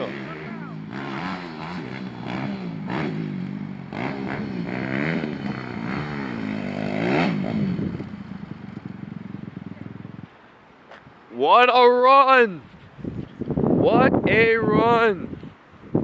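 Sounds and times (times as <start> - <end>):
dirt bike engine revving: 0.0 - 10.1.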